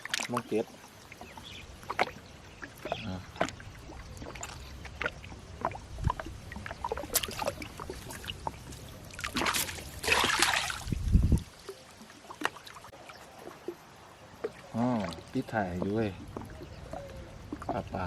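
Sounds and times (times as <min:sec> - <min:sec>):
water trickling and splashing: 0:00.0 - 0:18.0
loud splash: 0:09.1 - 0:11.2.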